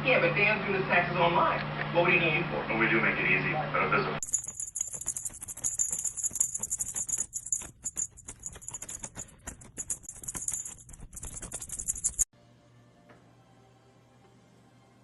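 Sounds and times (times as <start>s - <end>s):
fast continuous rattling: 4.2s - 12.3s.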